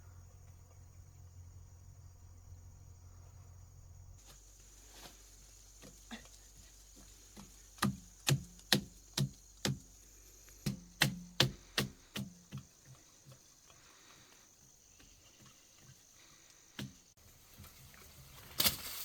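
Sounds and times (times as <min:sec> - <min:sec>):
chopping strikes with dull ring: 0:10.7 - 0:12.3.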